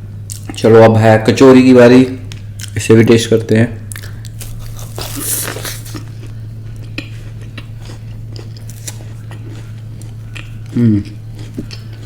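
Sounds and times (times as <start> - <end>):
crunchy food being eaten: 3.8 - 12.0.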